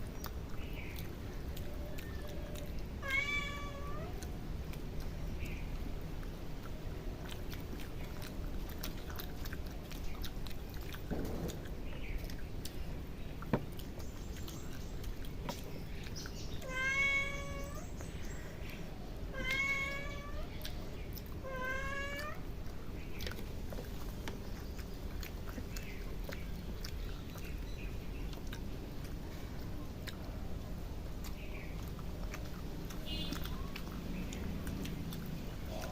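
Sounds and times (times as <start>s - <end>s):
cat meowing: 3.0s - 4.2s, 16.6s - 17.9s, 19.3s - 20.6s, 21.4s - 22.5s.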